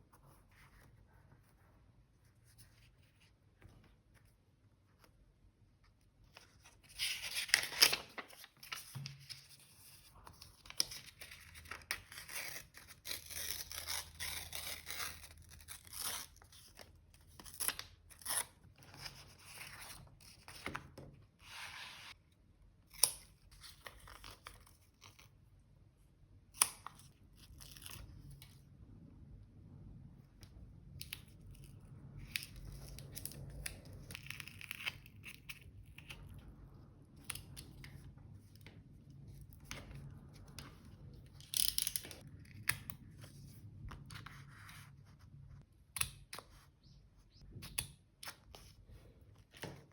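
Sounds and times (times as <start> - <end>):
paper rustling: 6.3 - 13.1.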